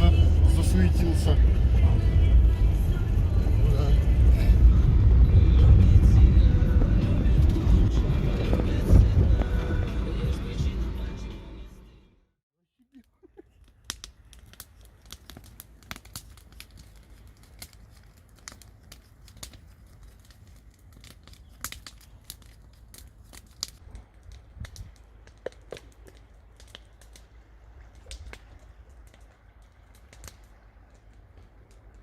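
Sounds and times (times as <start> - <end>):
wood fire crackling: 0.0 - 11.1, 13.4 - 32.0
low steady rumble: 0.0 - 12.0
sharp snaps and pops: 13.5 - 32.0.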